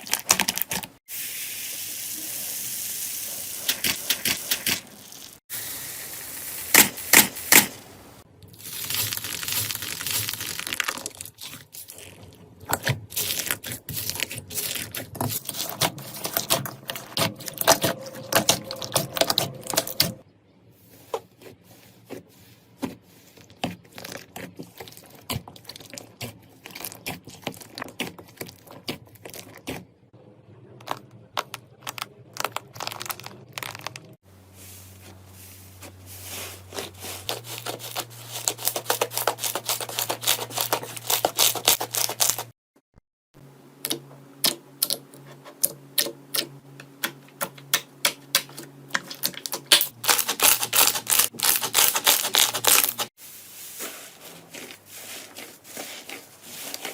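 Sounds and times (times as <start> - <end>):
slime crackling and popping: 8.6 - 12.3, 49.1 - 53.1.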